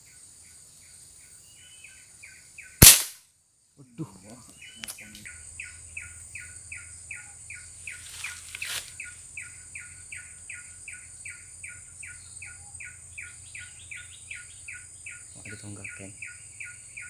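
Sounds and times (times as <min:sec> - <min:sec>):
high-pitched insect hiss: 0:04.8 - 0:17.0.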